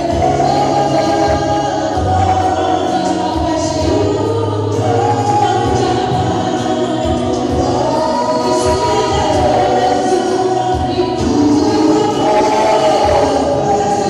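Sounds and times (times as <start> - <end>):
bass accompaniment: 0.0 - 14.0
choir singing gospel: 0.0 - 14.0.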